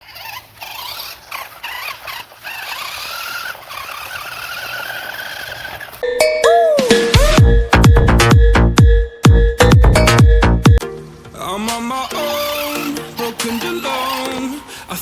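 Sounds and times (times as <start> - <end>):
toy truck electric motor whining: 0.0 - 6.0, 12.2 - 14.7.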